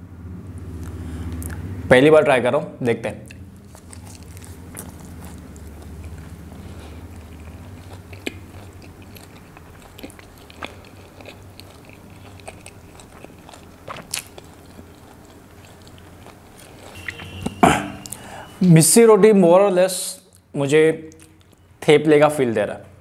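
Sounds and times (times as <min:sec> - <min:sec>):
close chewing mouth sounds: 0:00.6 - 0:01.7, 0:03.2 - 0:18.3.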